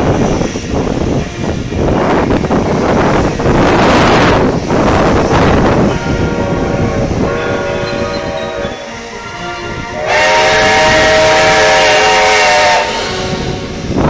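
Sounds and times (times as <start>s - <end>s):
steam hissing: 0.0s - 14.0s
steam locomotive whistle: 5.8s - 14.0s.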